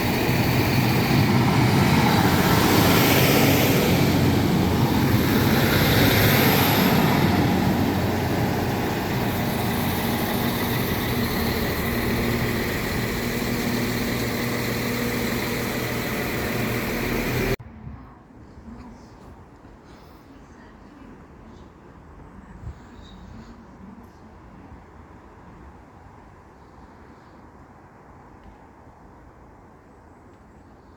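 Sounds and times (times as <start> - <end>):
faint engine tones: 0.0 - 17.6
train rushing past: 0.0 - 17.6.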